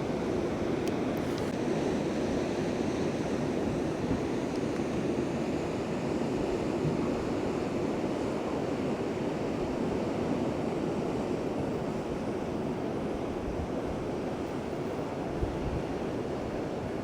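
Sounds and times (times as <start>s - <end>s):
wind noise on microphone: 15.3s - 17.0s.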